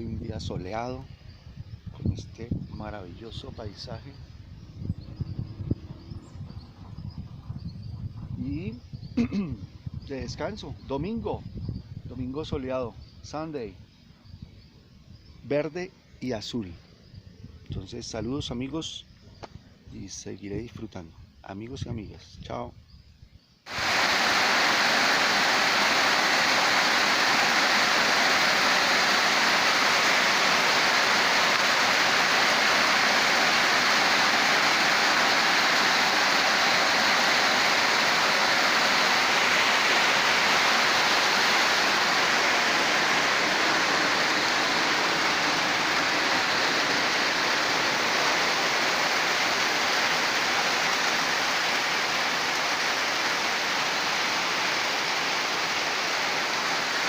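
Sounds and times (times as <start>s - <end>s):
rushing water: 23.7s - 57.0s.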